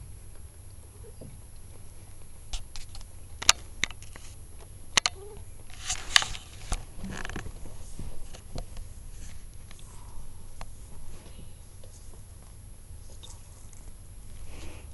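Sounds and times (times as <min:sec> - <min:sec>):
kitten claws tapping and scratching: 0:02.5 - 0:09.9.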